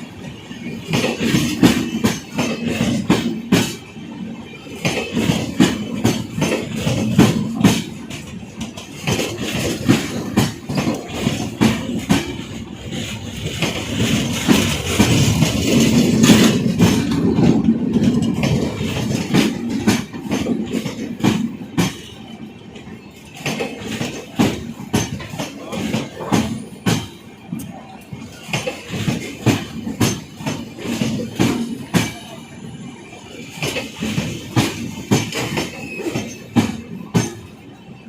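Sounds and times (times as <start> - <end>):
train wheels clacking over rail joints: 0.0 - 32.4, 33.3 - 37.7
train rumble: 0.0 - 38.0.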